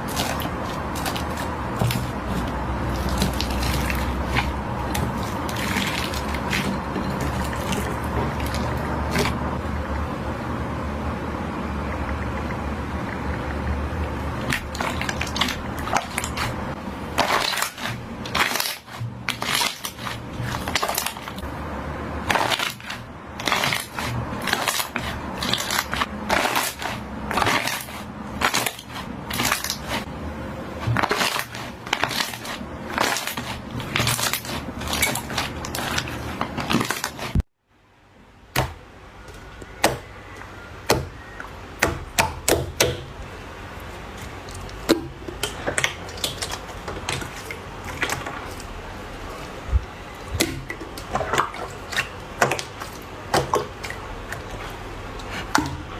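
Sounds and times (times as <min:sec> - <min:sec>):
slime crackling and popping: 0:17.2 - 0:21.4, 0:22.2 - 0:30.0, 0:30.8 - 0:37.4.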